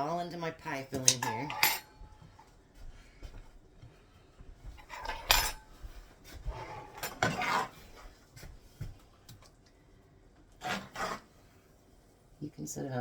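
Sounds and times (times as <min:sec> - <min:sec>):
utensil scraping and clinking on pan: 0:01.0 - 0:02.0, 0:04.8 - 0:05.8, 0:06.6 - 0:07.9.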